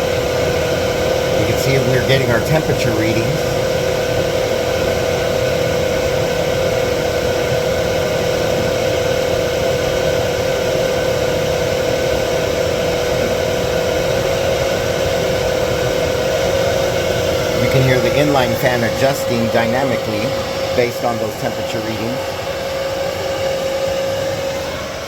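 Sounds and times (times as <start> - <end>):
fan hum: 0.0 - 25.0
fans rushing air: 0.0 - 25.0.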